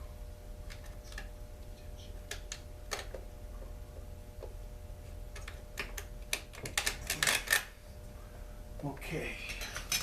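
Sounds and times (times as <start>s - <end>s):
faint steady hum: 0.0s - 10.0s
metal parts and tools clicking: 5.4s - 7.7s, 9.4s - 10.0s.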